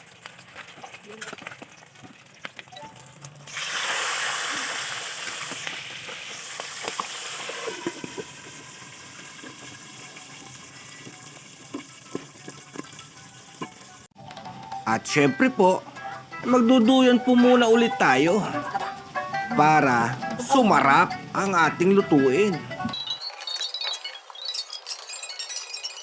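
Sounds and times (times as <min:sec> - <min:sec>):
oil popping and crackling: 0:00.0 - 0:22.0, 0:22.9 - 0:26.0
meat sizzling in hot oil: 0:02.6 - 0:14.1, 0:23.0 - 0:26.0.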